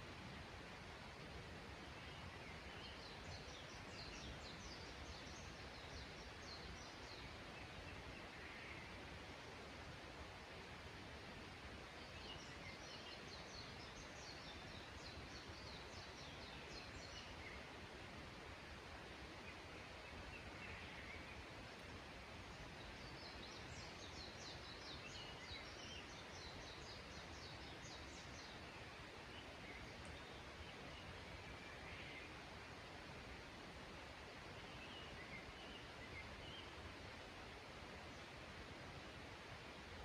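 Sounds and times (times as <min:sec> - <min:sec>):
outdoor ambient hiss: 0:00.0 - 0:40.0
songbird singing: 0:00.1 - 0:10.6, 0:11.6 - 0:40.0.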